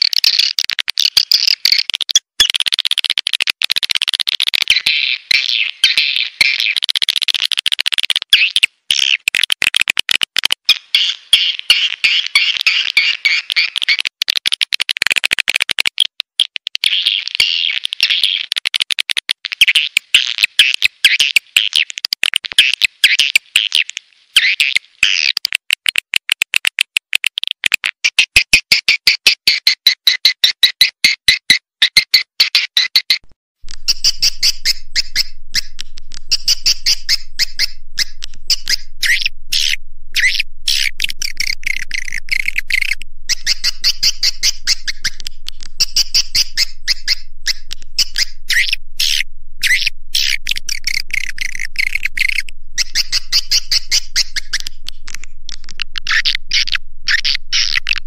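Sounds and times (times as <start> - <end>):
faint low hum: 33.6 - 58.0
swiftlet calls twittering: 33.7 - 58.0.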